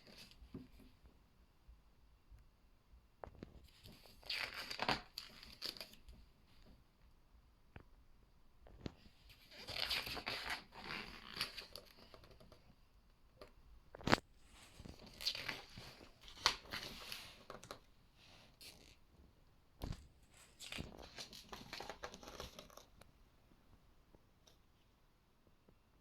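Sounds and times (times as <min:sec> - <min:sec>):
book pages turning: 0:03.4 - 0:06.7, 0:08.8 - 0:12.6, 0:14.0 - 0:17.9, 0:19.8 - 0:23.0.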